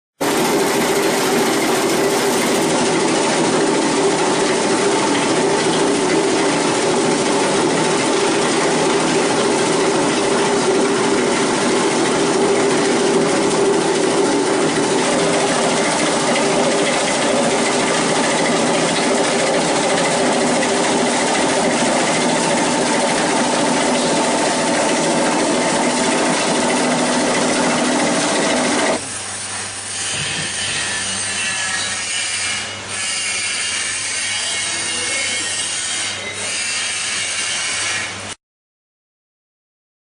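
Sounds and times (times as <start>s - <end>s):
machine running with low hum: 0.2s - 31.6s
granulator grinding plastic: 0.2s - 31.7s.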